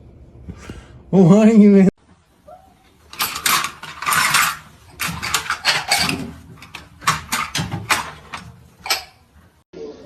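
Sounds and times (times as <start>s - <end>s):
hard objects clattering: 3.0s - 9.6s.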